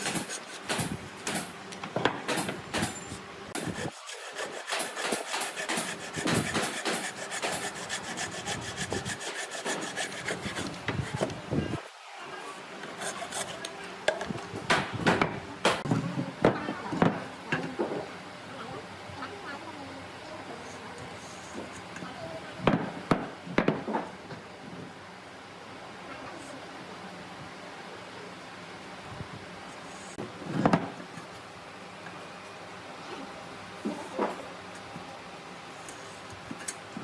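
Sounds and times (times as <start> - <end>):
hand tool rasping wood: 0.0 - 1.5, 3.6 - 11.4, 12.9 - 13.6.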